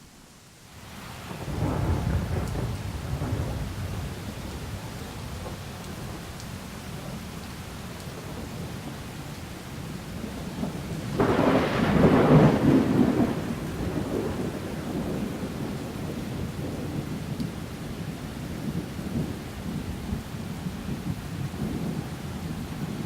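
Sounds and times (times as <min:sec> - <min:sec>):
steady rain: 0:00.0 - 0:23.0
thunderclap rumbling: 0:01.3 - 0:06.3, 0:10.2 - 0:23.0.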